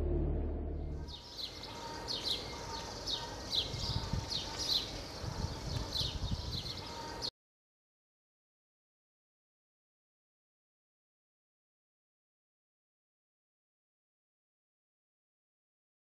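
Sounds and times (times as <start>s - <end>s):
low background rumble: 0.0s - 1.2s
low hum: 0.0s - 1.3s
birds chirping: 1.0s - 7.3s.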